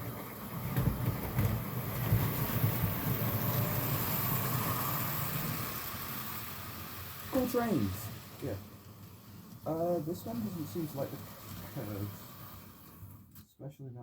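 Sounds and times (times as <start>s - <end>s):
model train rumbling: 0.0s - 13.3s
light clicks of train wheels: 8.1s - 13.5s.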